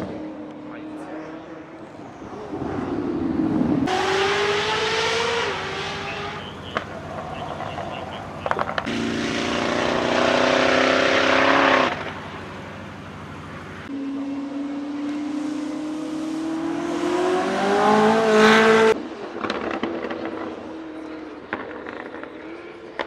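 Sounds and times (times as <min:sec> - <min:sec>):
car engine accelerating hard: 0:00.0 - 0:23.0
exhaust pops: 0:05.9 - 0:09.2.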